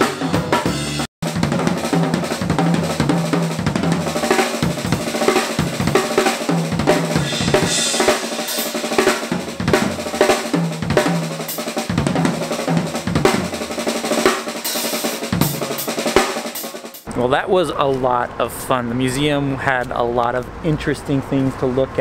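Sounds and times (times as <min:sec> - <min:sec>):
bass drum: 0:00.0 - 0:16.4
snare drum strokes and rolls: 0:00.0 - 0:17.1
cymbal crash: 0:00.7 - 0:16.6.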